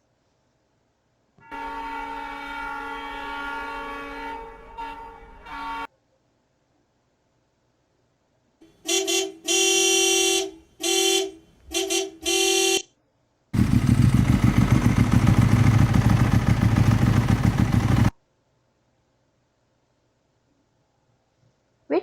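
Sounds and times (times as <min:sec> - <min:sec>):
car horn honking: 0:01.4 - 0:05.9, 0:08.6 - 0:12.9
vehicle engine running loudly: 0:13.6 - 0:18.1.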